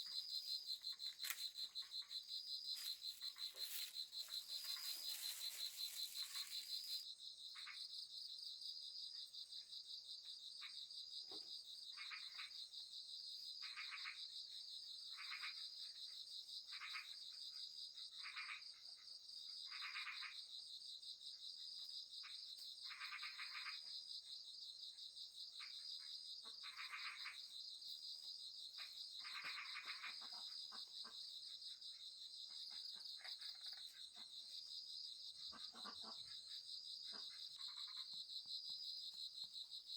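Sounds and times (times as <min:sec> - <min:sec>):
frogs calling: 0:00.0 - 0:07.0, 0:11.9 - 0:12.6, 0:13.6 - 0:14.3, 0:18.2 - 0:18.6, 0:19.7 - 0:20.4, 0:22.8 - 0:23.9, 0:26.4 - 0:27.5, 0:28.8 - 0:31.3, 0:35.4 - 0:38.5
high-pitched insect trill: 0:00.0 - 0:07.7.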